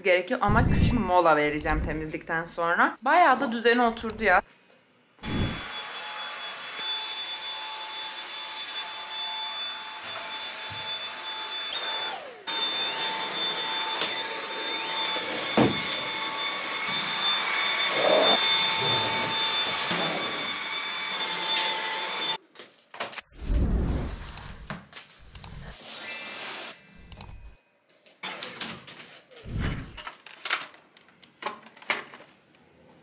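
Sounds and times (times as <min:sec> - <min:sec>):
vacuum cleaner whine: 0:05.2 - 0:22.4.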